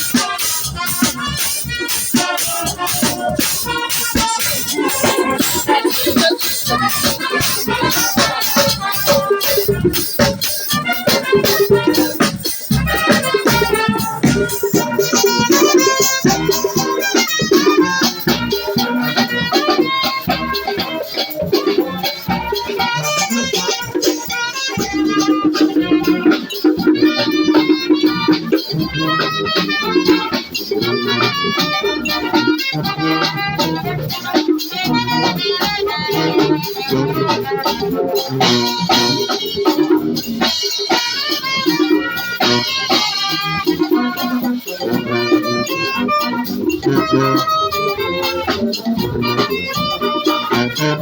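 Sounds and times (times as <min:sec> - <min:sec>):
brass band playing: 0:00.0 - 0:51.0.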